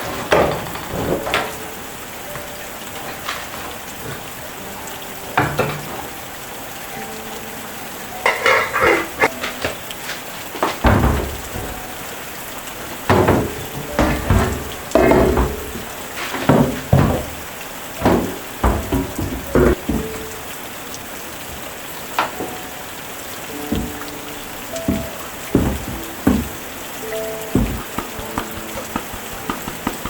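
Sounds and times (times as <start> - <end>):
steady hiss: 0.0 - 30.0
utensil clattering against pot: 8.2 - 9.6, 13.1 - 17.4.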